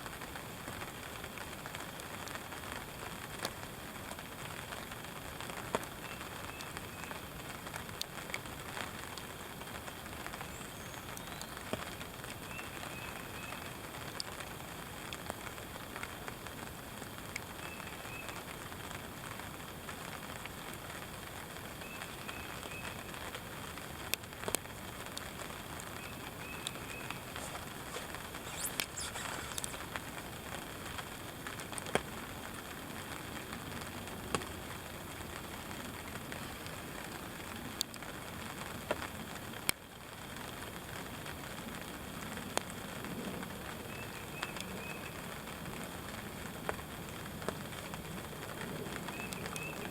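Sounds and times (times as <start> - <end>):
steady rain: 0.0 - 49.9
raindrops ticking: 0.1 - 36.4.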